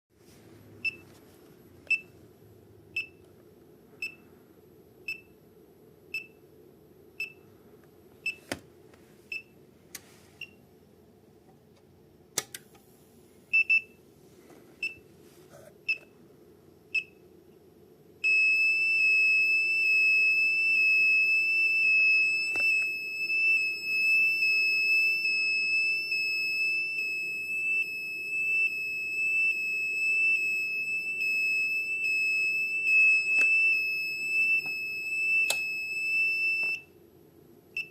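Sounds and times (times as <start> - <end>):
continuous high alarm tone: 18.2 - 37.0.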